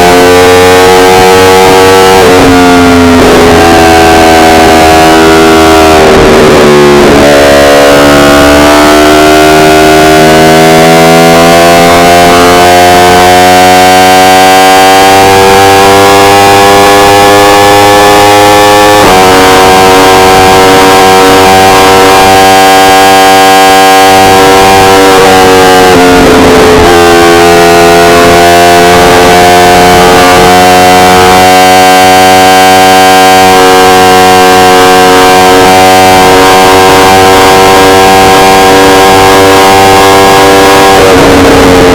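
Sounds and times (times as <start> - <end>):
motorcycle engine revving hard: 0.0 - 41.9.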